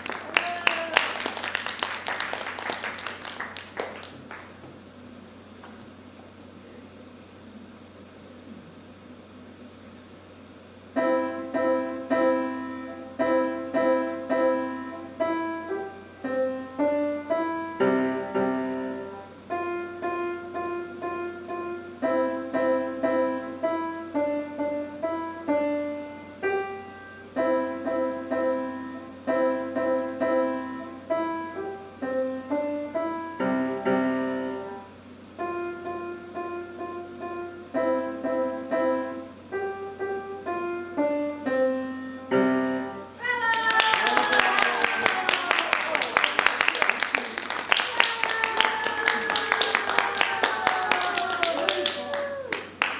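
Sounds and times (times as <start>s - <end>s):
solo piano melody: 10.9s - 43.2s.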